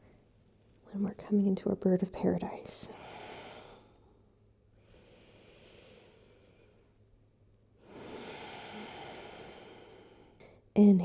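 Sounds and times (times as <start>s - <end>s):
person breathing slowly: 2.9s - 4.2s, 4.8s - 7.0s, 7.8s - 10.7s.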